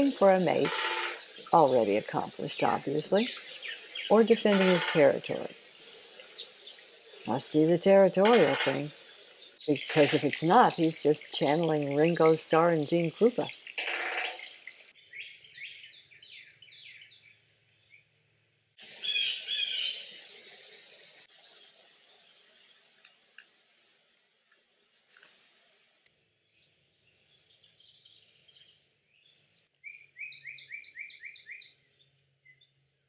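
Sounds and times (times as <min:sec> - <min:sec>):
high insect drone: 0:00.0 - 0:01.6
songbird chirping: 0:00.0 - 0:23.9, 0:26.4 - 0:33.0.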